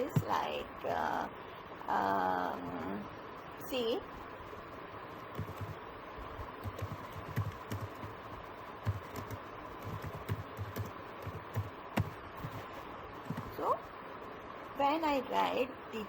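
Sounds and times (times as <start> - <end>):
computer keyboard typing: 5.3 - 5.8, 6.6 - 8.2, 8.8 - 12.6, 13.2 - 13.7.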